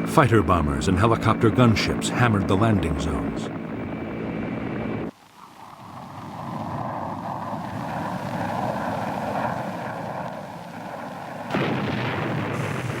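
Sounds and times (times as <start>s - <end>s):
aircraft engine roar: 0.0s - 13.0s
explosion: 11.5s - 13.0s.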